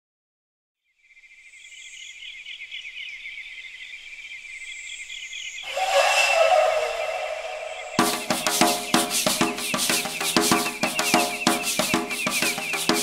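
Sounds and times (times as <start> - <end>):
louder low sound: 5.7 - 8.5.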